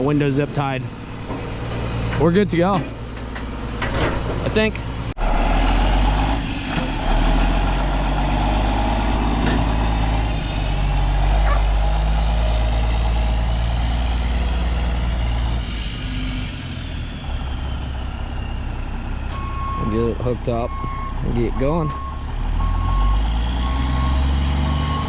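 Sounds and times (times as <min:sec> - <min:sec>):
heavy farm vehicle engine drone: 0:00.0 - 0:25.0.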